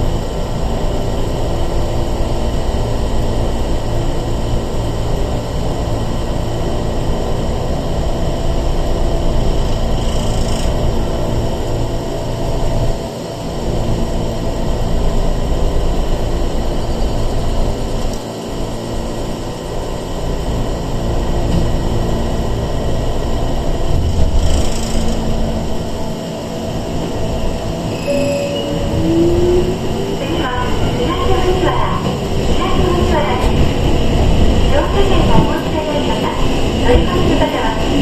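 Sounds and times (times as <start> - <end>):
train wheels rumbling: 15.2 - 38.0
rising motor whine: 24.4 - 31.0.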